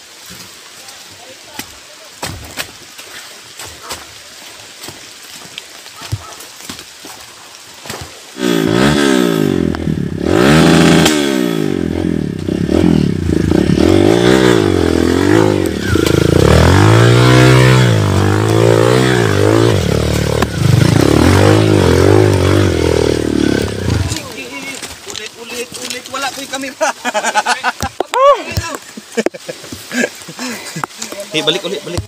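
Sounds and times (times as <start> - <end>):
dirt bike engine revving: 8.4 - 24.4.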